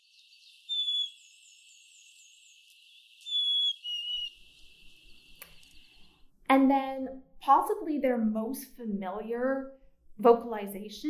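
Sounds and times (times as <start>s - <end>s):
chickadee whistled song: 0.0s - 2.6s, 3.2s - 6.1s
faint calls of other birds: 0.0s - 6.2s.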